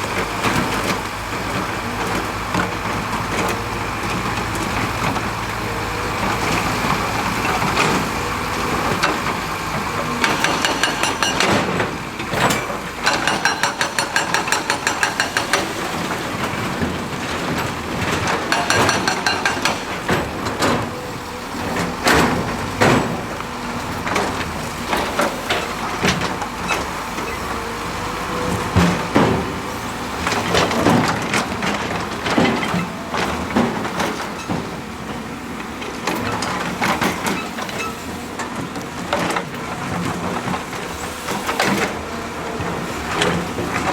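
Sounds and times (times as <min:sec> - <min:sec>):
heavy construction machinery running: 0:00.0 - 0:43.9
sharp metal clanks: 0:13.1 - 0:15.8.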